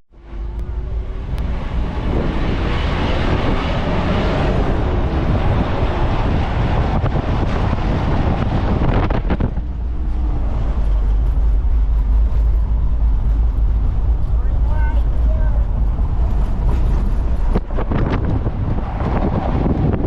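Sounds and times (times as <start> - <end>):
vehicle engine and road rumble: 0.1 - 20.0
wind buffeting microphone: 0.2 - 20.0.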